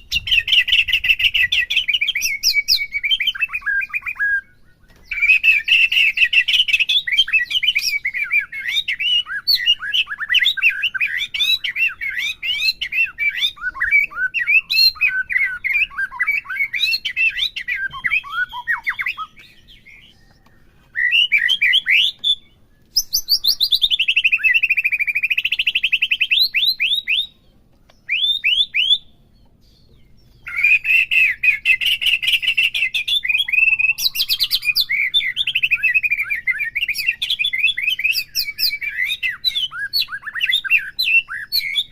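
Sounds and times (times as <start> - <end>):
bird rapid trill: 0.0 - 20.4, 29.8 - 41.9
bird singing whistles and chirps: 0.0 - 41.9.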